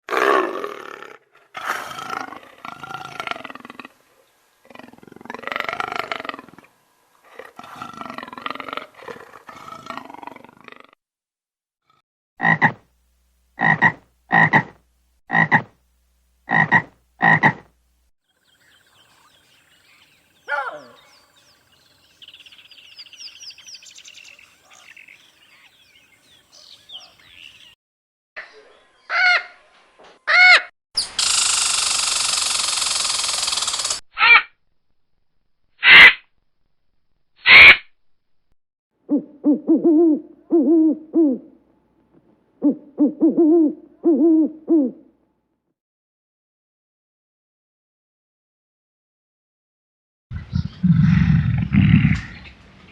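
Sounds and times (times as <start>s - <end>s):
animal growl: 0.1s - 11.0s, 50.3s - 52.6s
frog croaking: 12.4s - 12.9s, 13.6s - 15.8s, 16.4s - 17.7s
bird-like chirping: 18.3s - 27.8s, 50.4s - 52.9s
short pitched animal calls: 35.8s - 36.2s, 37.4s - 37.9s.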